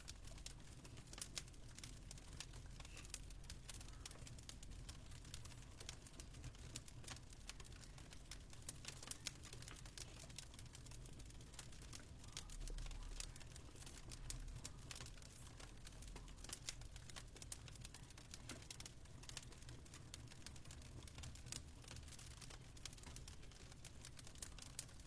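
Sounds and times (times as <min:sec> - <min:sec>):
fireplace crackling: 0:00.0 - 0:25.0.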